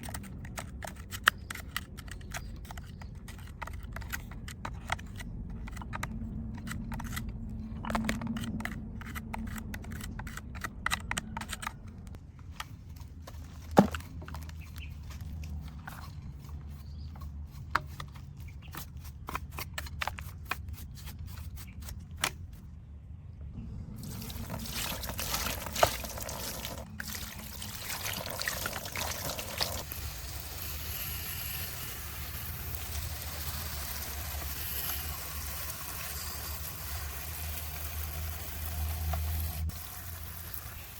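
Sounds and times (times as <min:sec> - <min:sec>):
water pouring and trickling: 0:23.9 - 0:40.9.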